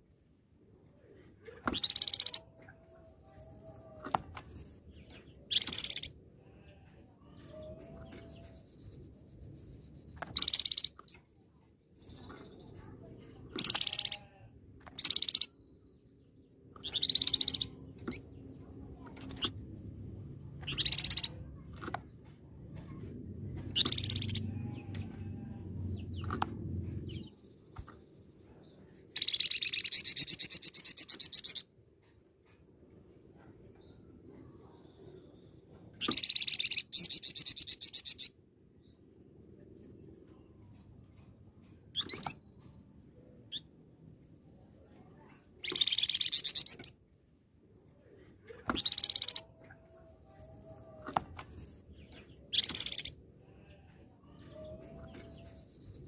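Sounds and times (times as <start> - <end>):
songbird high-pitched call notes: 1.8 - 4.0, 5.5 - 6.2, 13.6 - 14.3, 16.8 - 17.8, 52.5 - 53.2
songbird rapid trill: 52.5 - 53.2.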